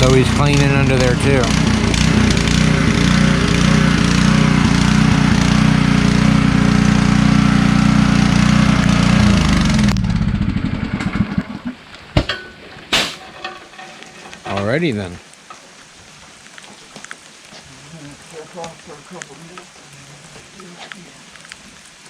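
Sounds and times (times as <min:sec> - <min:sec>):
water spray hissing: 0:00.0 - 0:10.0, 0:16.8 - 0:22.0
pressure washer running: 0:00.0 - 0:11.4.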